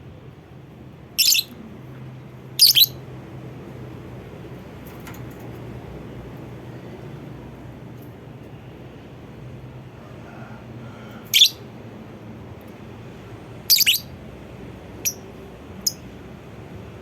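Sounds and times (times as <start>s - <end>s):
lovebird calling: 1.2s - 1.6s, 2.6s - 3.0s, 11.3s - 11.6s, 13.7s - 14.1s.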